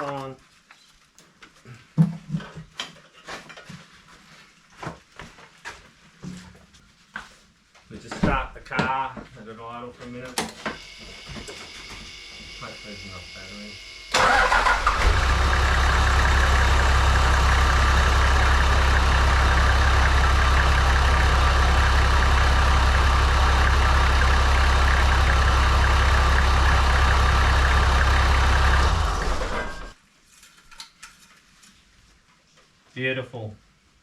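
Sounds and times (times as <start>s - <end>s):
car engine idling: 13.8s - 30.0s.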